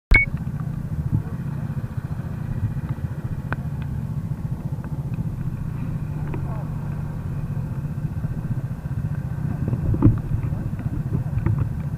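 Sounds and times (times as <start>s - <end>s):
kart engine running at low revs: 0.1s - 11.9s
faint clicks: 4.7s - 5.6s.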